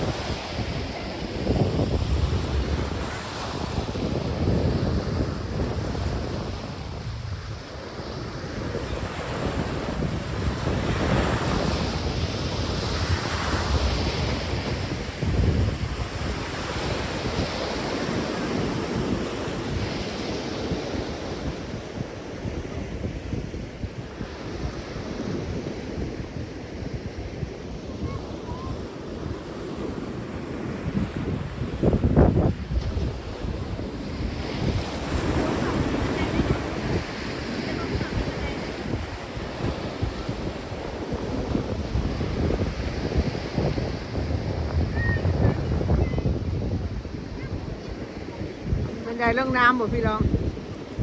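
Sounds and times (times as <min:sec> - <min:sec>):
sea waves breaking on shore: 0:00.0 - 0:51.0
wind buffeting microphone: 0:00.0 - 0:51.0.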